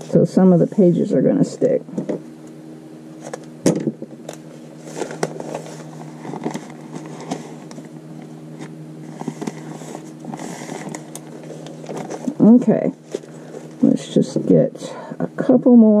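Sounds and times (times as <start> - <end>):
steady low hum: 0.0 - 16.0
stiff paper pages crackling: 4.2 - 13.8.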